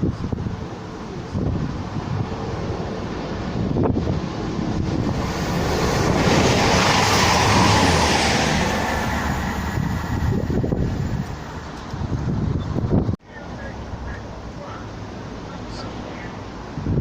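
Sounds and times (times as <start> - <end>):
train passing: 0.0 - 12.3
wind on microphone: 0.0 - 13.2, 15.7 - 17.0.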